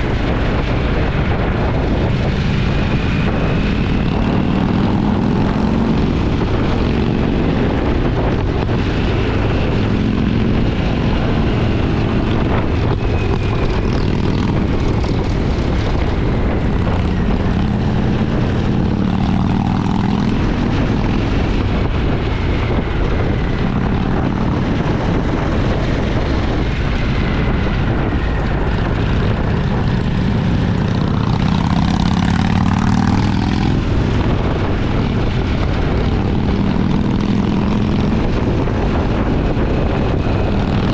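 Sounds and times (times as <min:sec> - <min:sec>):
motorcycle engine running: 0:00.0 - 0:40.9
wind rushing: 0:00.0 - 0:40.9.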